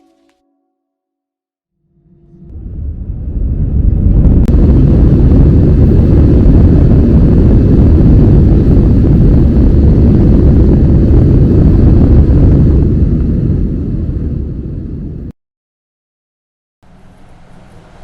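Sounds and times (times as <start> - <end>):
aircraft engines rumbling: 1.8 - 15.3.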